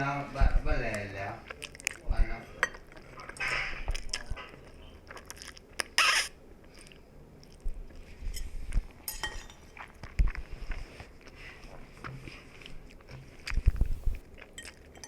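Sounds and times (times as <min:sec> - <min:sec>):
person chewing: 0:03.9 - 0:15.0.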